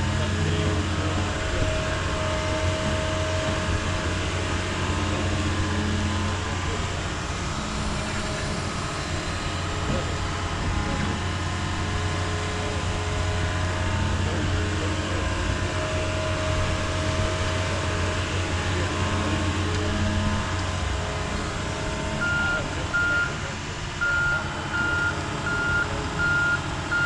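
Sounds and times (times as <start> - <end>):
excavator diesel engine running: 0.0 - 27.0
backup alarm beeping: 22.2 - 23.4, 24.0 - 27.0.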